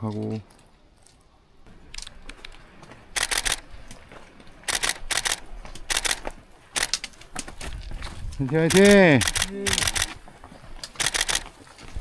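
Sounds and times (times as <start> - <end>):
camera shutter clicking in bursts: 3.2 - 3.8, 4.7 - 7.1, 8.6 - 10.2, 10.9 - 11.6.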